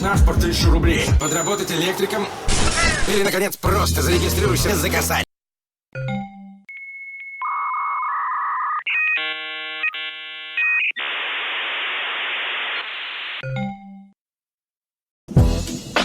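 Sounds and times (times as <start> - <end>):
static hiss: 11.0 - 13.4.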